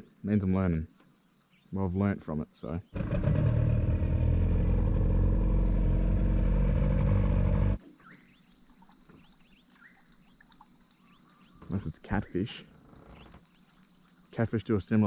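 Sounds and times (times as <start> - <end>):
insects trilling: 0.0 - 15.0
boat motor droning: 3.0 - 7.8.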